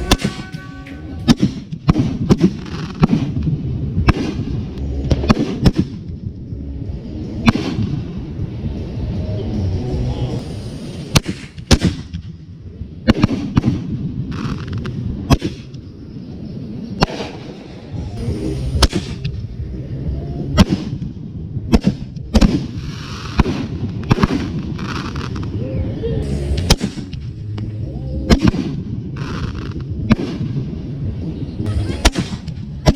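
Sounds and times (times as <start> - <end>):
fireworks bangs: 0.0 - 6.2, 7.4 - 8.6, 10.7 - 15.9, 16.9 - 19.5, 20.5 - 25.6, 26.4 - 27.4, 28.3 - 31.0, 31.7 - 32.9
hissing crackle: 7.2 - 32.9.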